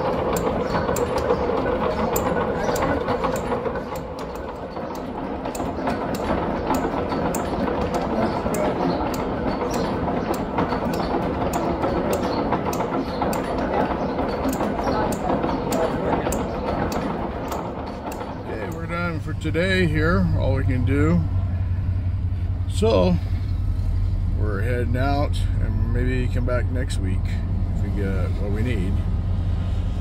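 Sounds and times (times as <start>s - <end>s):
sharp mechanical clicks: 0.0s - 19.5s
lathe running: 0.0s - 30.0s.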